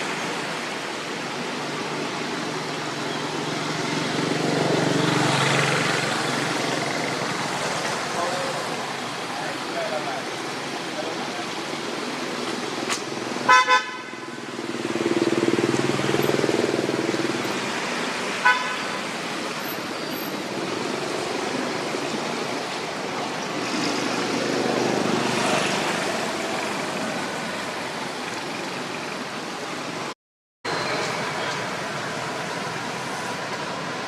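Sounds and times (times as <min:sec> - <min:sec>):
road traffic noise: 0:00.0 - 0:34.0
vehicle horn toots: 0:13.5 - 0:14.4, 0:18.4 - 0:19.0.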